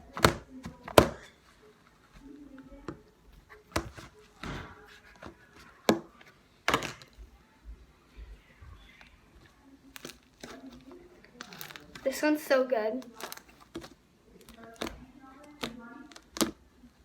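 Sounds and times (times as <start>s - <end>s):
slime squelching: 8.8s - 17.0s.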